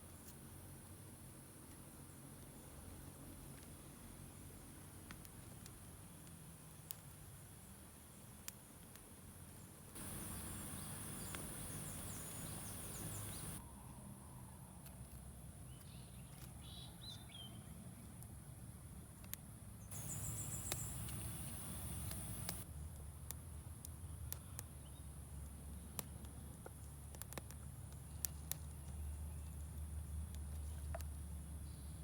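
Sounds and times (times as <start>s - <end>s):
faint bird chirps: 10.0s - 14.5s, 19.8s - 22.6s
sharp clicks: 19.3s - 22.6s.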